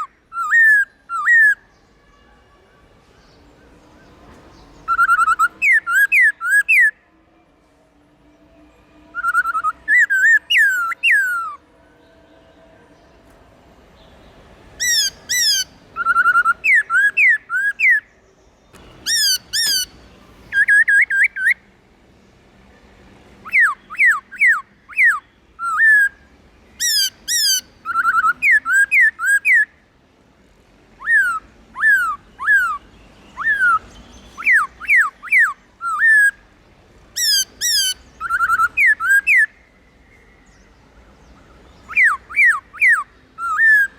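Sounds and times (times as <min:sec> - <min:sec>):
laughingthrush singing: 0:18.8 - 0:21.6.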